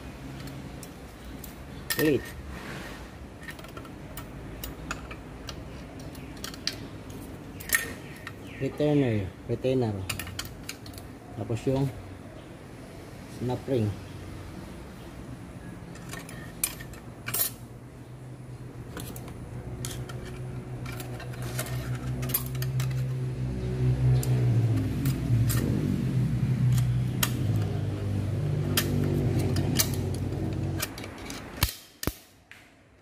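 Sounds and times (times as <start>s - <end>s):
metal clicks and clinks: 3.4s - 8.4s, 10.0s - 11.1s, 15.9s - 17.7s, 18.9s - 23.2s, 24.1s - 25.9s, 28.7s - 32.2s
low droning hum: 15.6s - 31.6s.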